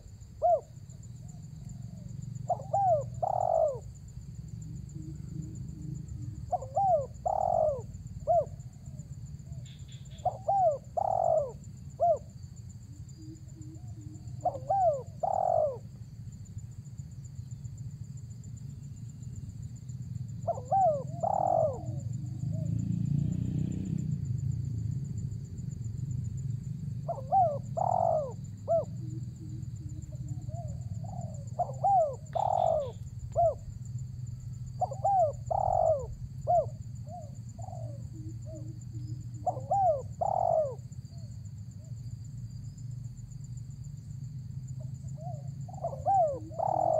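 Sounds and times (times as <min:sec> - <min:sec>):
dove cooing: 0:00.0 - 0:16.0, 0:20.4 - 0:22.9, 0:27.0 - 0:33.8, 0:34.6 - 0:41.9, 0:44.8 - 0:46.9.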